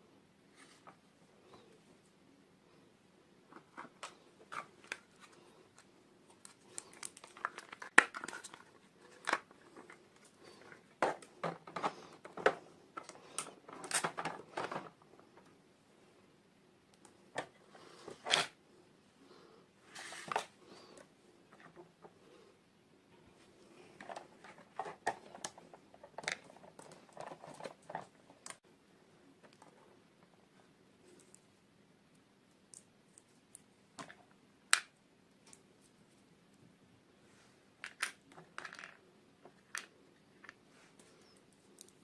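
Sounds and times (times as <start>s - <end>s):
plastic packaging crinkling and tearing: 6.4s - 9.4s.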